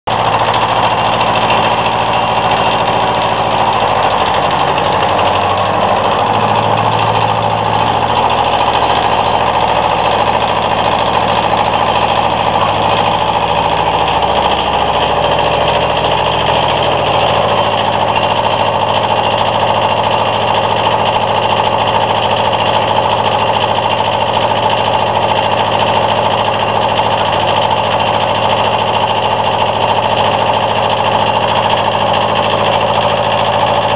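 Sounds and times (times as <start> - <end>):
tractor diesel engine idling: 0.0 - 33.9.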